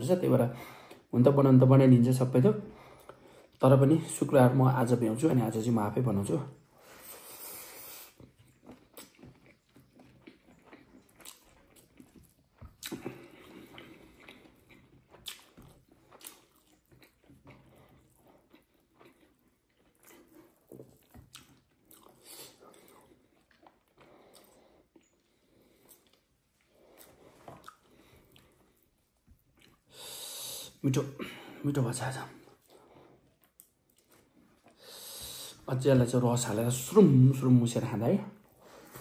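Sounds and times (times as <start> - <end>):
person chewing food: 6.9 - 30.8, 32.3 - 35.7
wet mouth clicks and smacks: 27.0 - 27.9.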